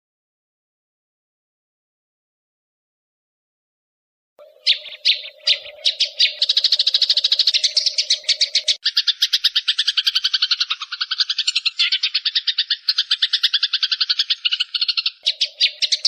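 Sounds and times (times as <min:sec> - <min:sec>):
sparrow chirping and chattering: 0:04.4 - 0:16.0.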